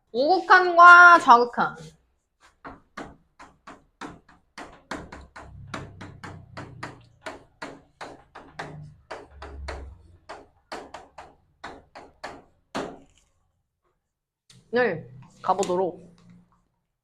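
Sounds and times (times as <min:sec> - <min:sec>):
rapid sharp taps: 0:02.6 - 0:13.3.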